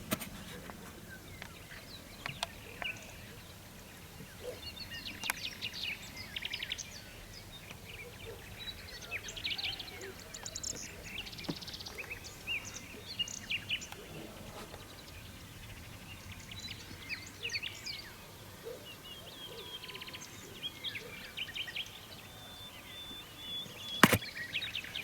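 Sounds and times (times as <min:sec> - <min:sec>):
small birds chirping: 0:00.2 - 0:25.0
sharp click: 0:24.0 - 0:24.3.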